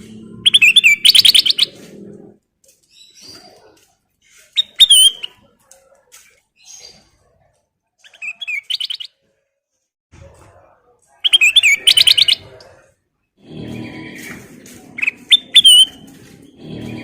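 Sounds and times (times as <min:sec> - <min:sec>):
bird singing whistled notes: 0:00.4 - 0:01.8, 0:04.6 - 0:05.3, 0:08.1 - 0:09.1, 0:15.0 - 0:16.0.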